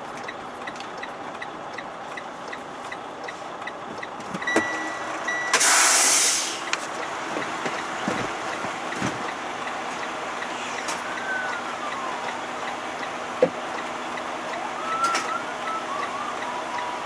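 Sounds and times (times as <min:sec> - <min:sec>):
turn signal ticking: 0:00.0 - 0:05.6, 0:06.6 - 0:17.0
truck engine noise: 0:00.0 - 0:17.0
air brake hissing: 0:05.5 - 0:06.8, 0:10.5 - 0:11.5.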